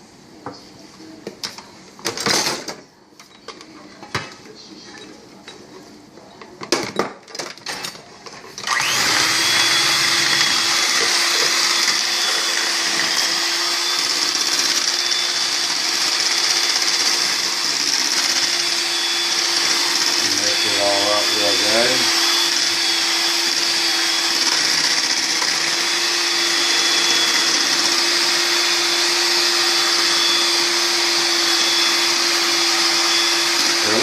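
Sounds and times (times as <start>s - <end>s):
kitchen knocks and clatter: 1.2s - 4.5s, 6.6s - 8.4s
electric mixer whipping: 8.6s - 34.0s.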